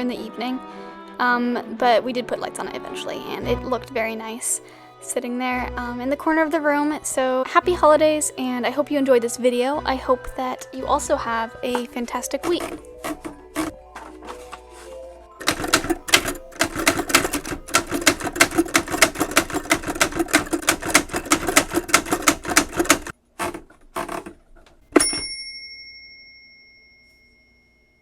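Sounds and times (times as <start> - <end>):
rapid mechanical clicks: 12.4 - 13.7, 15.4 - 24.9
bell-like ding: 25.0 - 28.0.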